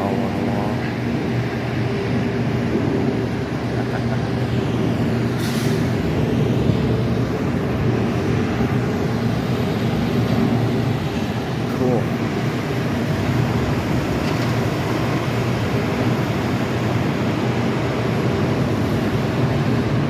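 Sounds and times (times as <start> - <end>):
heavy diesel engine running: 0.0 - 20.0
short hiss: 5.4 - 5.9.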